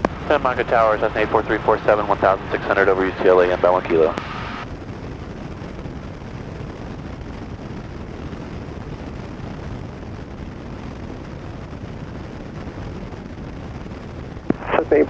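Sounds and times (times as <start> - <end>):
light aircraft engine drone: 0.0 - 11.7.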